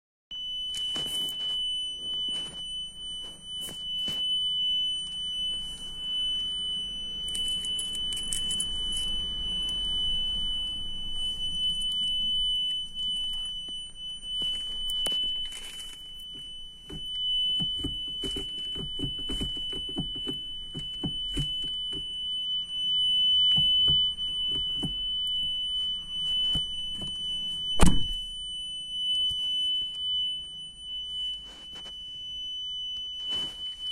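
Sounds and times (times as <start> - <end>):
parking sensor buzzer steady tone: 0.3 - 33.9
handling noises and clicks: 0.7 - 4.4, 7.0 - 22.2.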